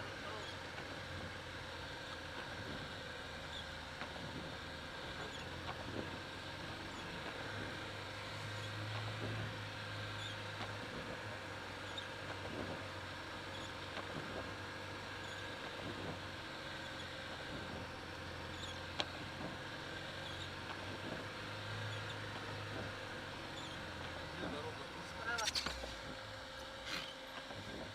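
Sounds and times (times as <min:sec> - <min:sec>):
engine and tyres drone: 0:00.0 - 0:27.9
squeaks and rattles: 0:25.2 - 0:26.0.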